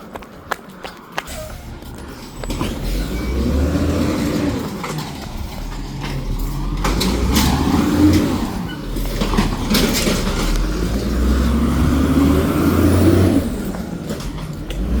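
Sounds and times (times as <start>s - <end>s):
diesel truck engine revving: 1.3s - 15.0s.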